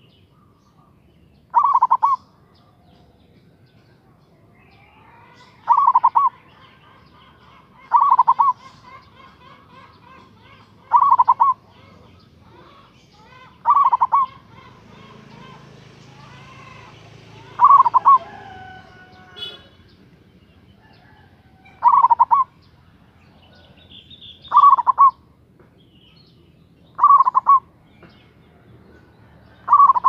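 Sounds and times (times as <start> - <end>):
faint birds chirping: 0.0 - 30.0
dove cooing: 1.5 - 3.2, 4.8 - 19.8, 20.8 - 25.2, 27.0 - 27.8, 28.9 - 30.0.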